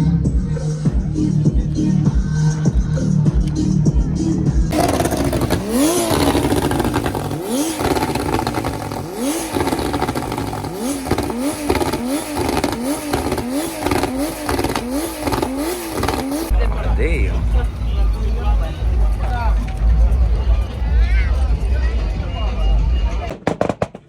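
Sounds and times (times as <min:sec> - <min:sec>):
background music with a beat: 0:00.0 - 0:04.8
car engine revving: 0:04.7 - 0:23.2.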